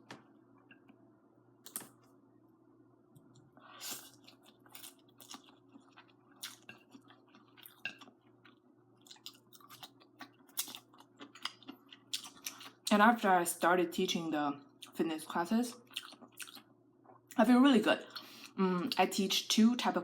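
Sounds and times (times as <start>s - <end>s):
chewing noodles: 3.8s - 12.8s, 15.8s - 17.4s.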